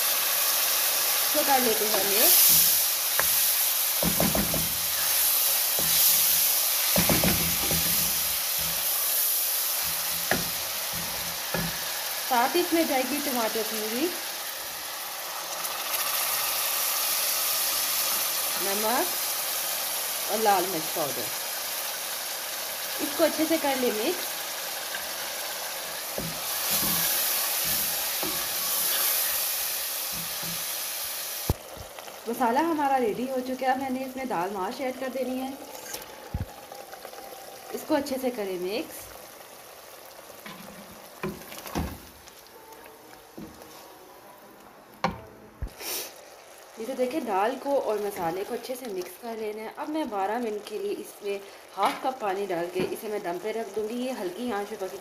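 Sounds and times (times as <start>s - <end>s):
onions sizzling in oil: 0.0s - 55.0s
wooden spoon knocking pot: 4.0s - 5.0s, 6.9s - 8.9s, 9.8s - 12.0s.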